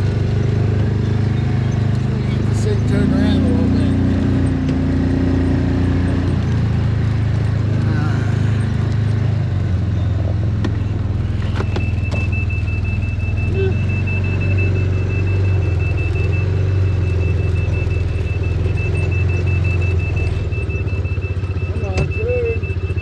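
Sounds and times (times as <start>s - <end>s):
engine humming: 0.0s - 23.0s
rapidly pulsing beep: 10.8s - 23.0s.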